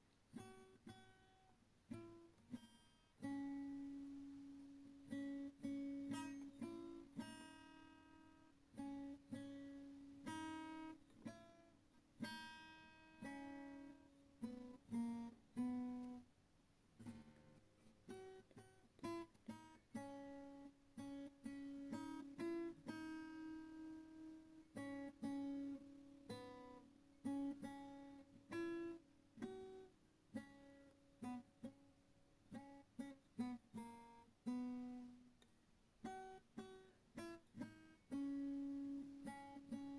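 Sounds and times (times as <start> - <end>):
acoustic guitar plucked notes: 0.3 - 16.3, 17.0 - 39.9.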